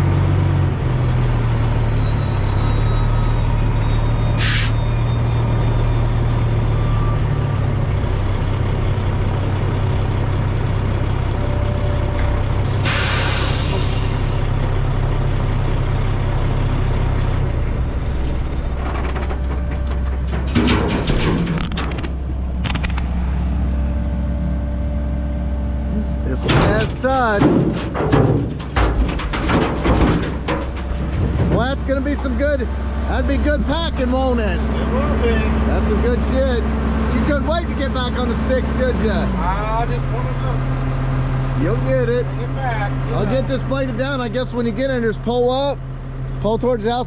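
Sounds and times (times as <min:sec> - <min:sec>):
diesel truck engine running: 0:00.0 - 0:47.0
air brake hiss: 0:04.4 - 0:04.8, 0:12.7 - 0:14.4
clattering knocks: 0:18.8 - 0:22.3, 0:26.3 - 0:32.7.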